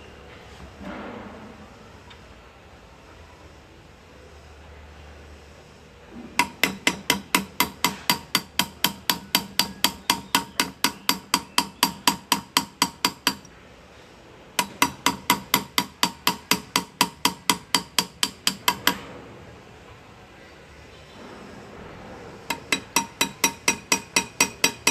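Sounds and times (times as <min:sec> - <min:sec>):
small hammer tapping metal graver: 0:06.4 - 0:13.5, 0:14.6 - 0:19.1, 0:22.5 - 0:24.9.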